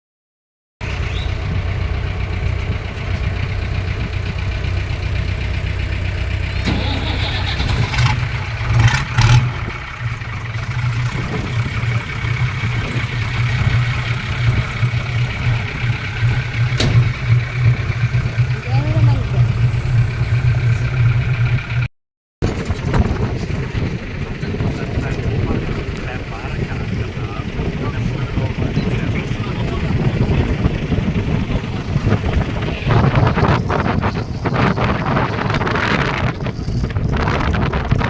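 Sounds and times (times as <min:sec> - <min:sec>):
tractor engines rumbling: 0:00.8 - 0:38.0
sharp knocks: 0:16.6 - 0:17.4.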